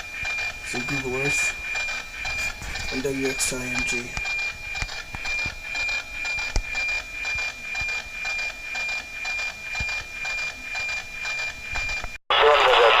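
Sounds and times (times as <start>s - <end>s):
radio signal whistle with ticking: 0.0s - 12.2s.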